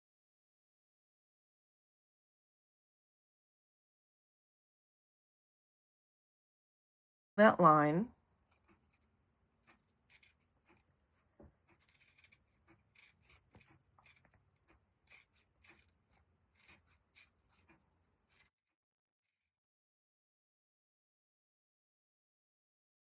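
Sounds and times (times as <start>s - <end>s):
scissors snipping fabric: 9.7s - 18.6s.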